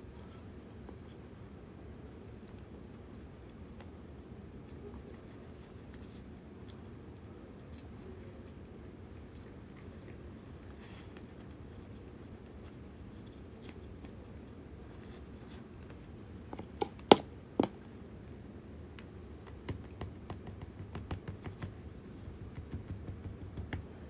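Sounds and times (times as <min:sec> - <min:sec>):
light ticks and taps: 0:18.9 - 0:23.9.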